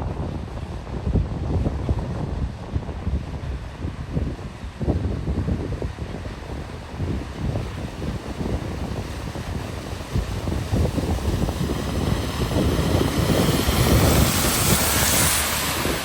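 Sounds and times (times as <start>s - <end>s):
wind buffeting microphone: 0.0s - 16.0s
vehicle pushing through floodwater: 5.9s - 16.0s.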